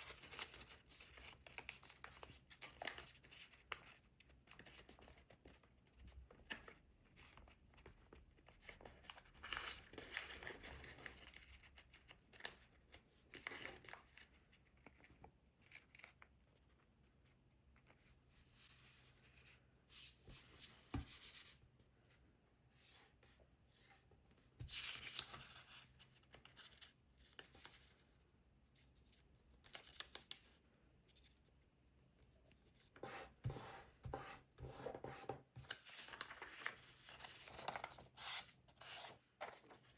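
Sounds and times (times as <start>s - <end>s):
paper rustling and creasing: 35.6s - 39.9s.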